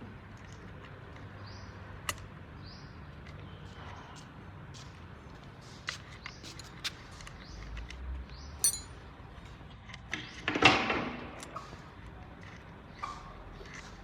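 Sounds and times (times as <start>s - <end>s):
metallic clatter: 8.6s - 8.9s
metal clink: 8.6s - 9.0s.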